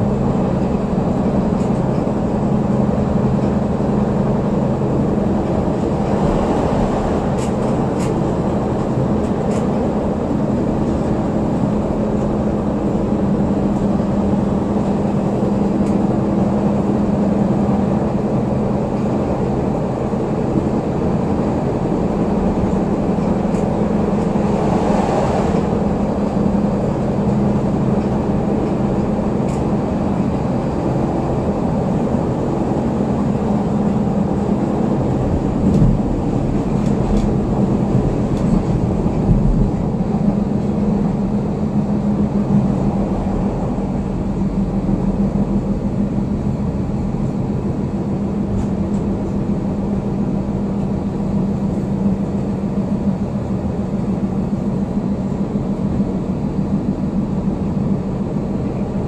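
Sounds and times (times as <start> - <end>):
constant low hum: 0.0 - 59.0
train wheels rumbling on rail: 0.0 - 59.0
clicks and knocks from track: 35.6 - 40.7.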